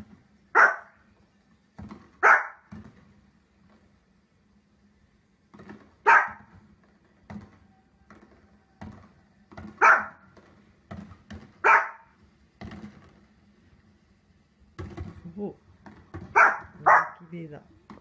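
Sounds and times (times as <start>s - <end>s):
dog barking: 0.5s - 1.0s, 2.2s - 2.7s, 6.0s - 6.5s, 9.8s - 10.2s, 11.6s - 12.2s, 16.3s - 17.3s.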